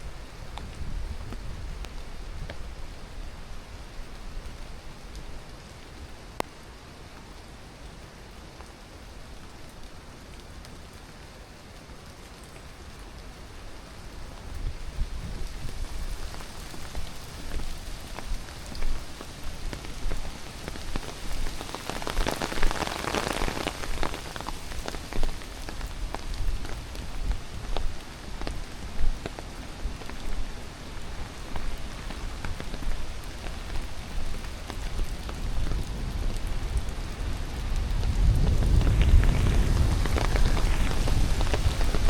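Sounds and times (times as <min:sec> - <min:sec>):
rushing water hiss: 0:00.0 - 0:42.0
small taps and crackles: 0:00.5 - 0:02.7, 0:15.3 - 0:42.0.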